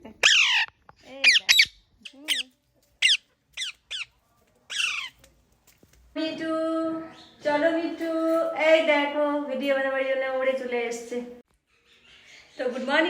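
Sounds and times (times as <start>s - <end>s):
parakeet squawking: 0.2s - 4.1s, 4.7s - 5.2s.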